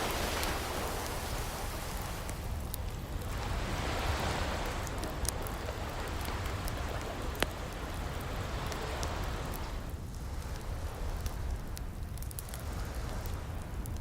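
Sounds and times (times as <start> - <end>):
ocean waves washing in: 0.0 - 11.6
wood fire crackling: 0.0 - 14.0.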